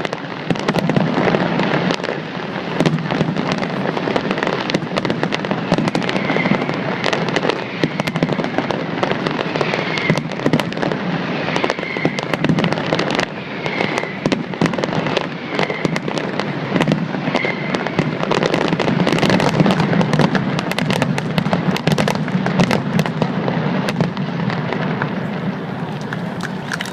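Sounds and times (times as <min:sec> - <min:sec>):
fireworks bangs and crackles: 0:00.0 - 0:26.9
rumble of firework bursts: 0:00.0 - 0:26.9.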